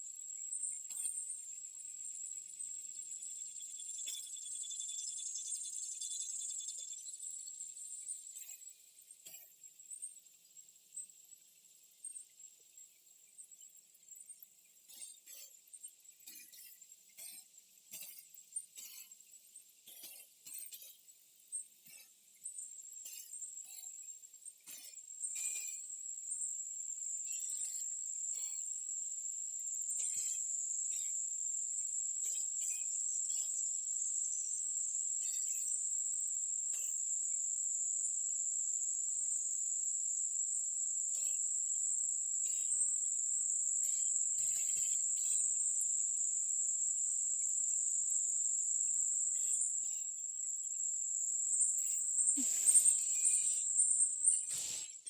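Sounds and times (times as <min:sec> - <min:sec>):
insects droning: 0:43.4 - 0:55.0.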